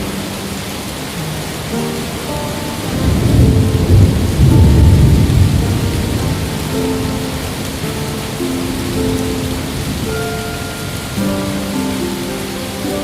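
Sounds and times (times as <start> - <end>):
soft held music notes: 0.0 - 13.0
steady rain: 0.0 - 13.0
rumble of thunder: 2.7 - 10.6.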